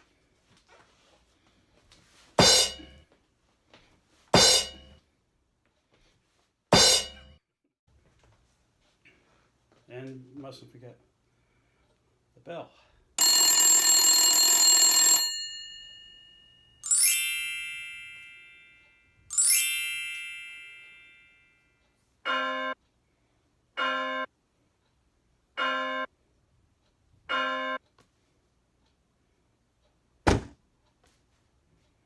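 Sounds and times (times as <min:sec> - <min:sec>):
bell ringing: 0:13.2 - 0:21.8.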